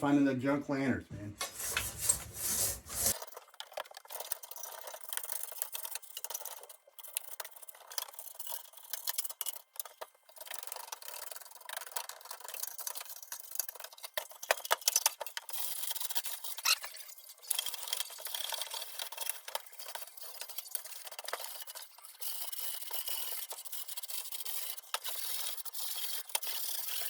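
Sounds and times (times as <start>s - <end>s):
hand rubbing and scraping: 1.2s - 3.2s.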